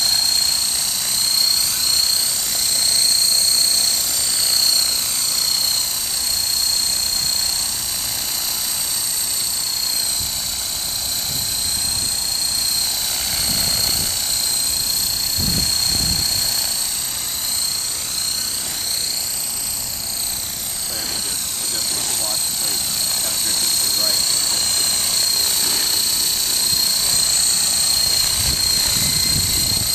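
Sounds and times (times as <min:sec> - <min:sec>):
rc helicopter motor whine: 0:00.0 - 0:29.9
rotors hissing: 0:12.4 - 0:29.9.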